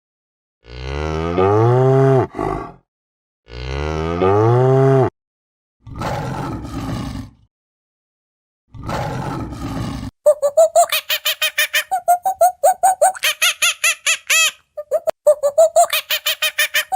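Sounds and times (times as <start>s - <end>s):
cow mooing: 0.6s - 2.7s, 3.5s - 5.1s.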